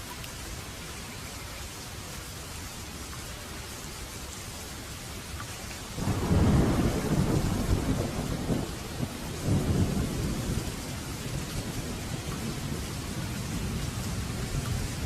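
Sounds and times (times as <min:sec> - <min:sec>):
steady rain falling: 0:00.0 - 0:15.0
thunder rumbling: 0:06.0 - 0:15.0.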